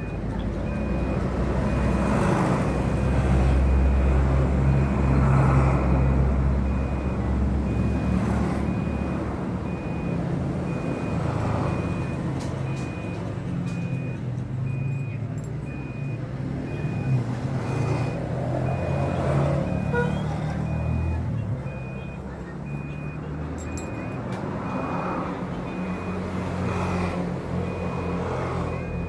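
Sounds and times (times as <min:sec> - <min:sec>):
vehicle engine rumble: 0:00.0 - 0:29.0.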